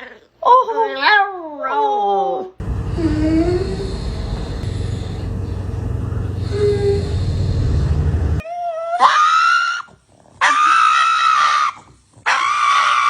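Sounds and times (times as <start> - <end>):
low rumbling noise: 2.6 - 8.4.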